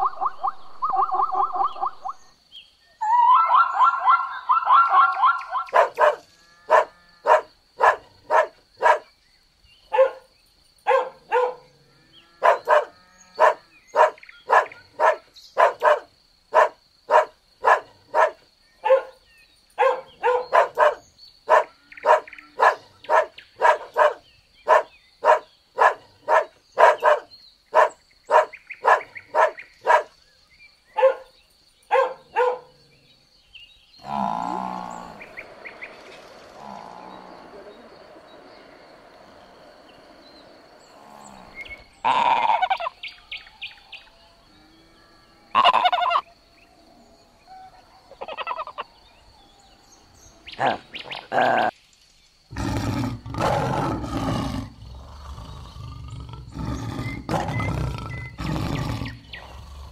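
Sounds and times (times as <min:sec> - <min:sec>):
dog barking: 0:03.4 - 0:09.1, 0:09.9 - 0:11.7, 0:12.4 - 0:19.2, 0:19.8 - 0:30.1, 0:31.0 - 0:31.3, 0:31.9 - 0:32.7.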